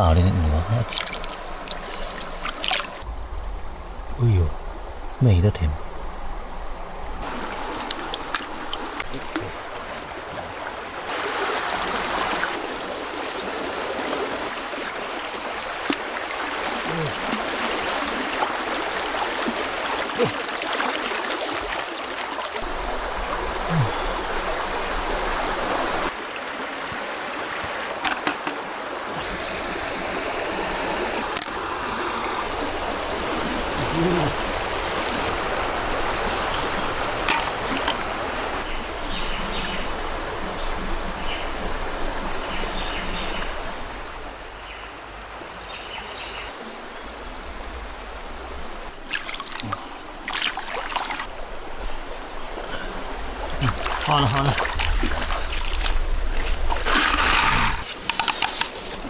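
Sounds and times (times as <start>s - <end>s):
stream water trickling: 0.0s - 59.0s
sharp clicks and knocks: 57.8s - 58.9s.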